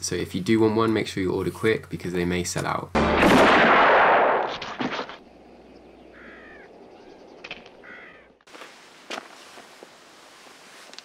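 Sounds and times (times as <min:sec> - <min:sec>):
crow cawing: 0:06.0 - 0:08.4.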